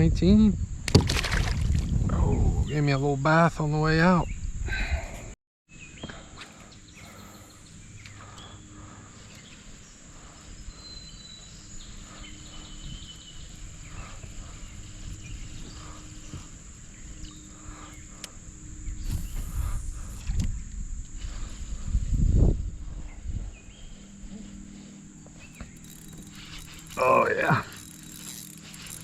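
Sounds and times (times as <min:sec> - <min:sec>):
high-pitched insect drone: 0:06.4 - 0:29.0.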